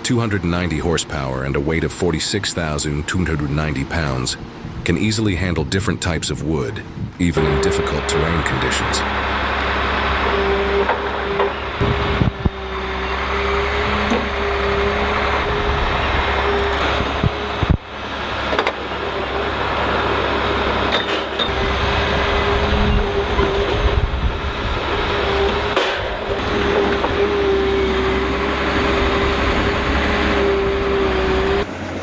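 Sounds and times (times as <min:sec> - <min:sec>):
heavy machine engine humming: 0:00.0 - 0:32.0
knocks and clanks: 0:10.2 - 0:12.6, 0:18.5 - 0:19.0, 0:20.9 - 0:24.0, 0:24.8 - 0:27.5.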